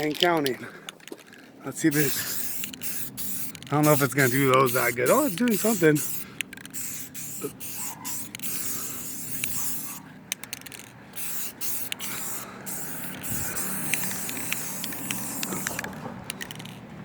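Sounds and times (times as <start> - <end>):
aerosol spray can hissing: 1.9 - 10.1, 11.2 - 16.0.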